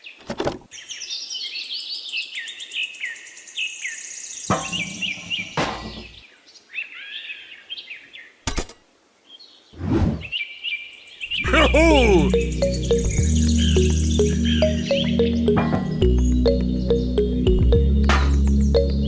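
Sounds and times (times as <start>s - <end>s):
small birds chirping: 9.2s - 19.0s
high bird trill: 11.3s - 17.8s.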